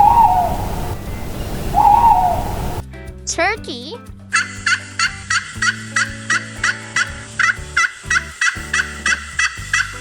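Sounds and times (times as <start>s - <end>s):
low steady held tones: 0.0s - 2.8s
turkey gobbling: 0.0s - 2.8s, 4.4s - 10.0s.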